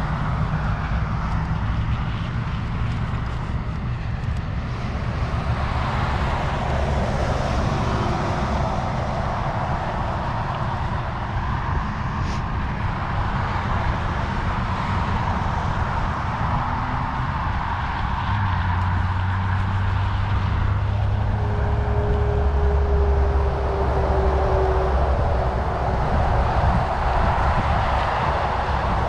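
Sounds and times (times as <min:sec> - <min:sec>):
wind rush on microphone: 0:00.0 - 0:29.0
low hum: 0:19.0 - 0:29.0.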